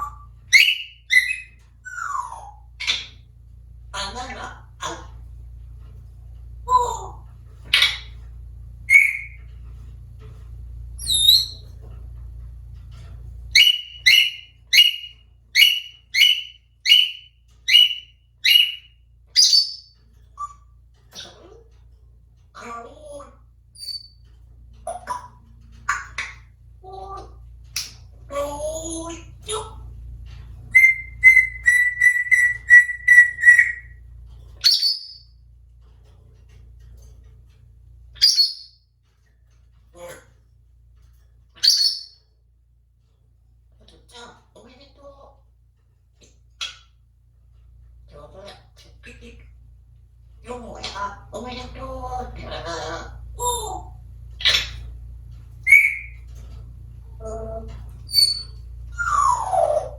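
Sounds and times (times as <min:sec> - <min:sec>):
parrot whistling calls: 0:00.0 - 0:03.1, 0:08.9 - 0:09.4, 0:13.6 - 0:19.8, 0:30.7 - 0:34.0, 0:55.6 - 0:56.2, 0:58.1 - 0:59.9
low hum: 0:00.0 - 0:59.9.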